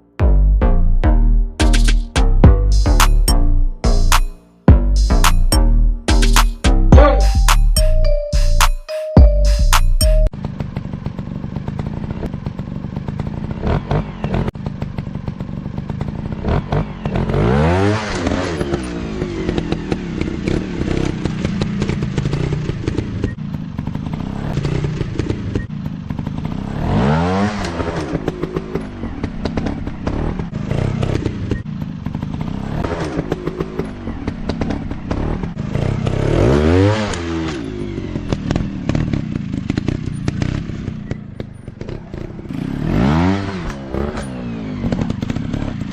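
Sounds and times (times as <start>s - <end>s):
dirt bike engine revving: 10.4s - 45.9s.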